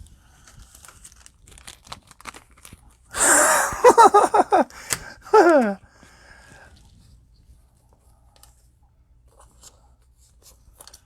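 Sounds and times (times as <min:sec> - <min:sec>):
foil wrapper crinkling and tearing: 0:00.2 - 0:03.2
cards rustling and clicking: 0:00.4 - 0:03.0, 0:04.5 - 0:05.8
short high voice sounds: 0:05.3 - 0:05.8.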